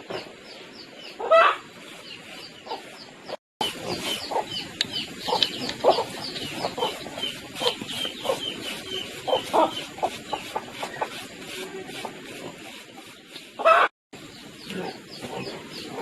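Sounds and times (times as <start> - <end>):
chickens clucking: 1.1 - 16.0
rapid high peeping chirps: 3.6 - 11.1.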